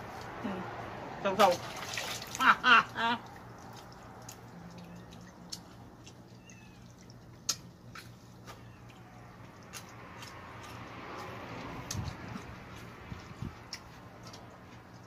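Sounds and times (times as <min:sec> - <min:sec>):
chewing and crunching: 0:03.2 - 0:15.0.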